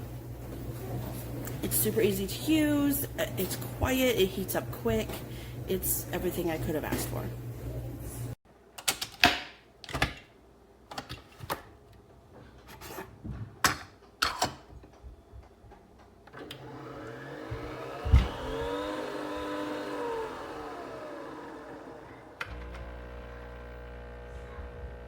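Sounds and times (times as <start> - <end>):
small electric motor humming: 16.4 - 25.0.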